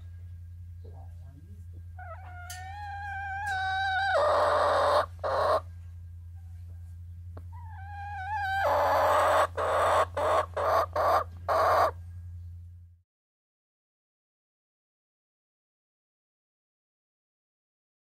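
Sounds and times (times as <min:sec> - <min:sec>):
low hum: 0:00.0 - 0:13.0
hens clucking and calling: 0:02.0 - 0:05.7, 0:07.4 - 0:12.0.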